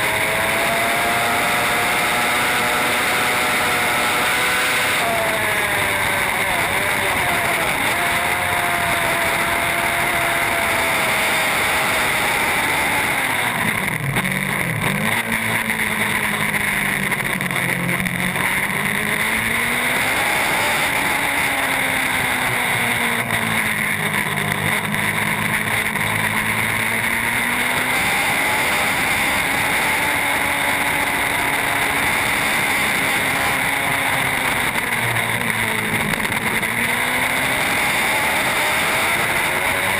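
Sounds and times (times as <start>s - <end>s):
motorcycle engine at high revs: 0.0s - 39.9s.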